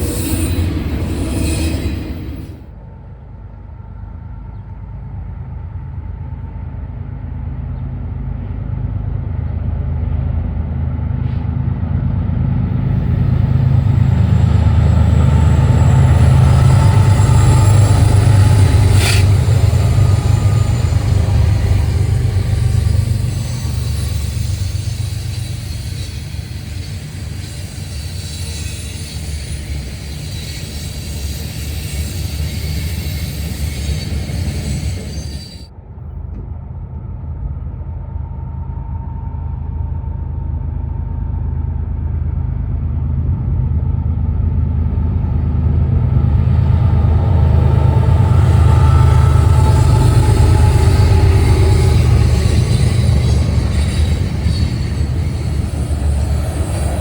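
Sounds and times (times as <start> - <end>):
passing train rumble: 0.0 - 57.0
high hiss: 12.9 - 35.7.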